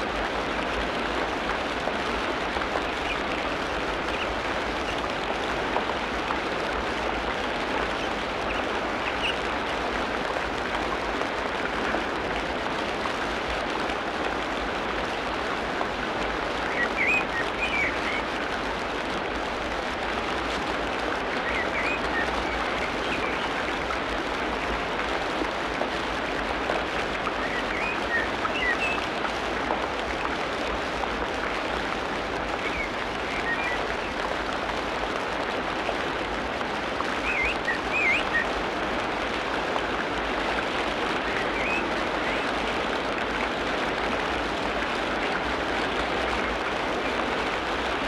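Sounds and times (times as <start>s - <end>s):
rain hiss: 0.0s - 48.0s
birds chirping: 37.3s - 38.4s.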